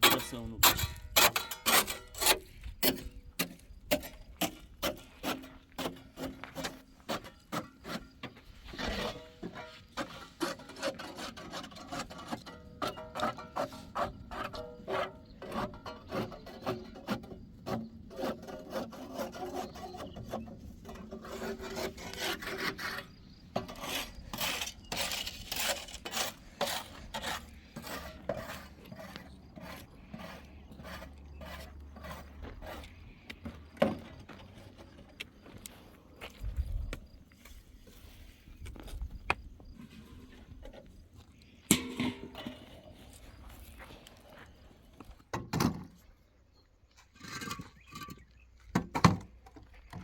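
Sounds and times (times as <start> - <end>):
rasping scraping strokes: 0.0 - 4.1, 4.8 - 33.4.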